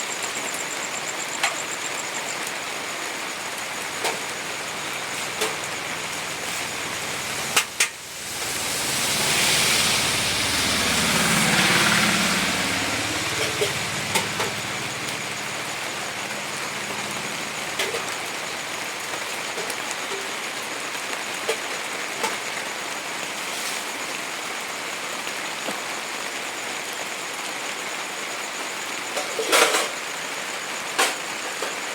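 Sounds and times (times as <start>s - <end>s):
rain hissing: 0.0s - 31.9s
vehicle passing on wet road: 3.1s - 19.9s.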